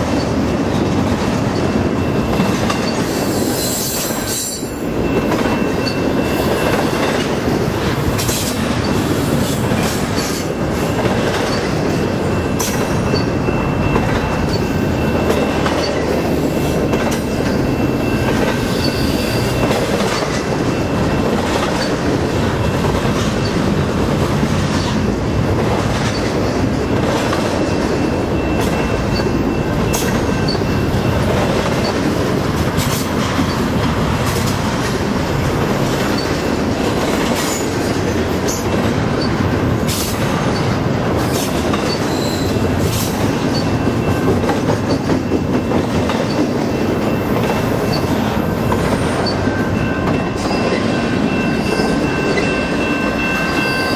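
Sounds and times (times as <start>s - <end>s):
freight train wheels rumbling: 0.0s - 53.9s
faint high squeal: 41.9s - 42.6s.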